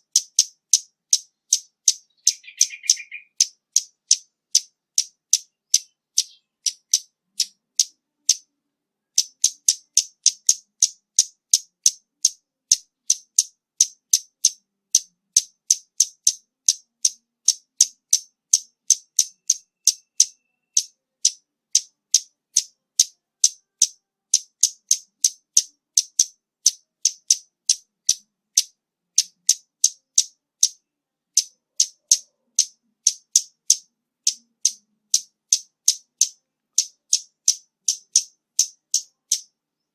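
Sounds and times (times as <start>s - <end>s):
high-pitched bird call notes: 0.0s - 8.5s, 19.0s - 25.3s.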